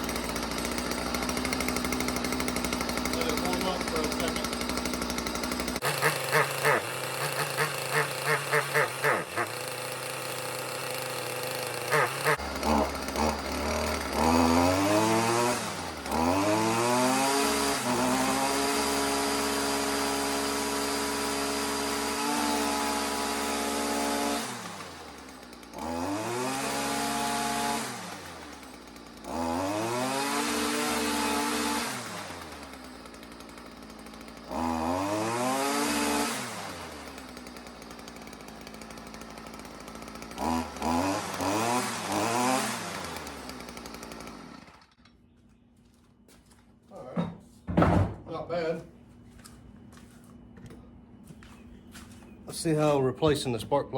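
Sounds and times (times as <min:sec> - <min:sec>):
string trimmer engine revving: 0:00.0 - 0:45.0.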